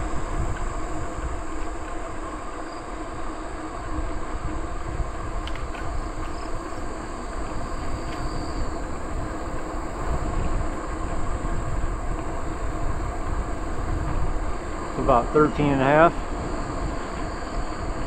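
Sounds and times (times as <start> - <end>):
bicycle tyre noise: 0.0 - 18.0
wind rumbling on the microphone: 0.0 - 18.0.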